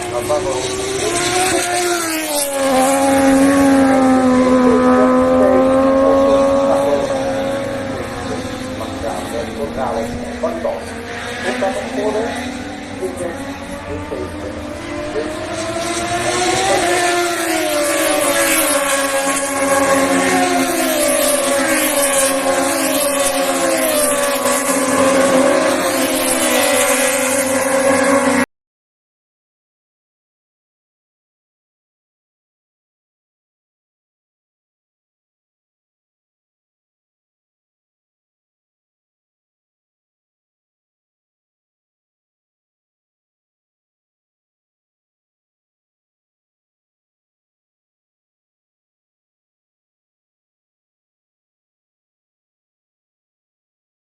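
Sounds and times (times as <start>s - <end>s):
racing motorcycle engine high revs: 0.0s - 28.5s
wind: 0.0s - 28.5s.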